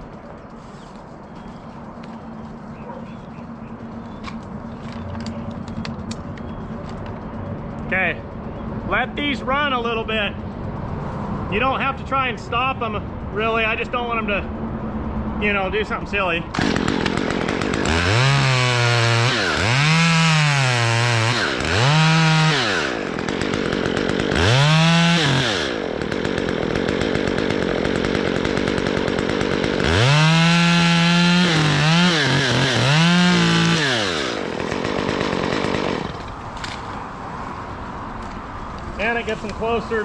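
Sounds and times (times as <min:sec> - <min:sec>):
chainsaw revving: 0:16.5 - 0:36.9.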